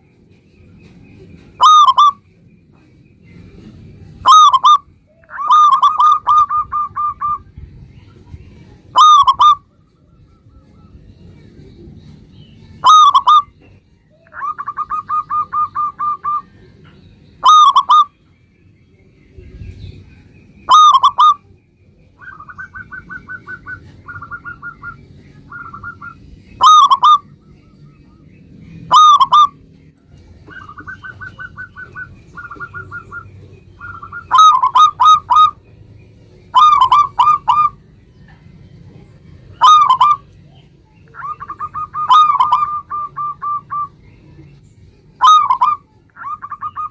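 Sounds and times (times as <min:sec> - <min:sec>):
dove cooing: 0:01.6 - 0:02.2, 0:03.6 - 0:07.4, 0:08.9 - 0:11.0, 0:12.8 - 0:16.6, 0:17.4 - 0:18.1, 0:20.7 - 0:21.4, 0:22.2 - 0:27.3, 0:28.9 - 0:29.6, 0:30.4 - 0:35.6, 0:36.5 - 0:37.8, 0:39.6 - 0:40.4, 0:41.1 - 0:44.0, 0:45.2 - 0:46.9.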